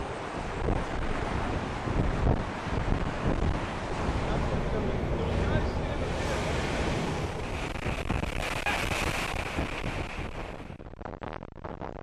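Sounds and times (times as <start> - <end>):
wind blowing across microphone: 0.0 - 12.0.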